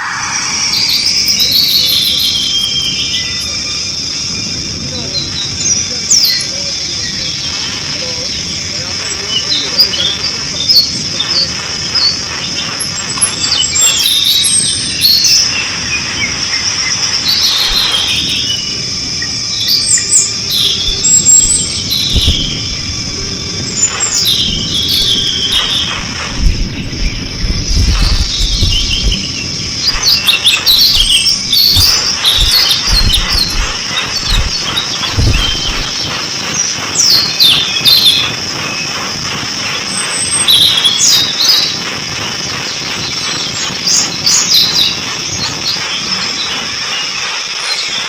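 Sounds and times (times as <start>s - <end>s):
high-pitched hiss: 0.0s - 48.0s
bird squeaky chirps: 19.6s - 36.1s
low thumps: 20.8s - 36.6s.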